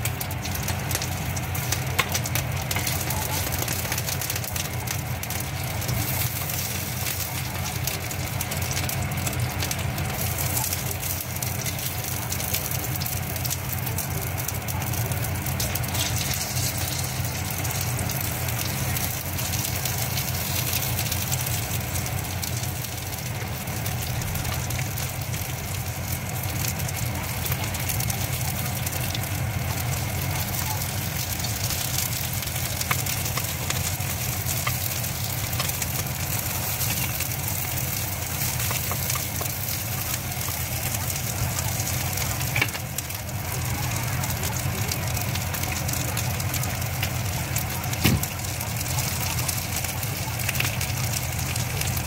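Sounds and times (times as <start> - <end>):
food sizzling in hot oil: 0.0 - 52.0.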